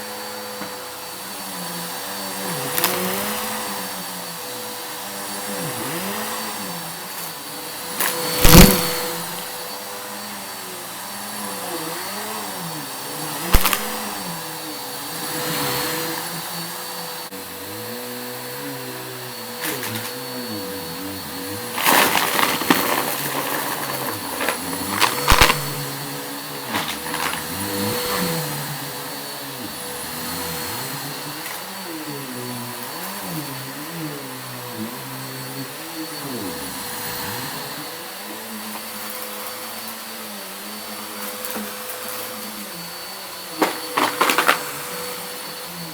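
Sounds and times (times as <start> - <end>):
vacuum cleaner running: 0.0 - 45.9
debris crackling in vacuum: 8.4 - 9.1, 21.7 - 28.4.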